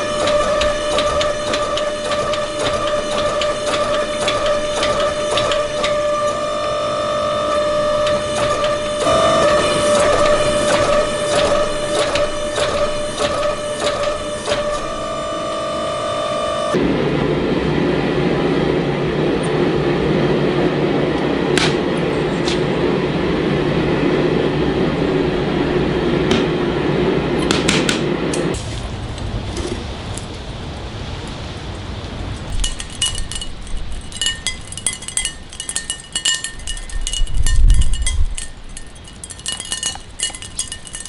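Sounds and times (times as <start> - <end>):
shop machinery running: 0.0 - 30.1
metal clinks and strikes: 32.5 - 41.0.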